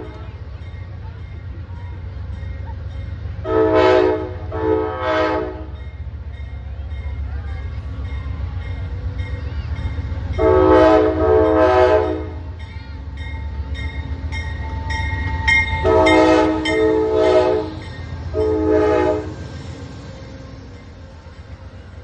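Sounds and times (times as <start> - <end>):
passing train rumbling: 0.0 - 22.0
locomotive air horn blasts: 3.4 - 5.8, 10.4 - 12.5, 15.8 - 19.5.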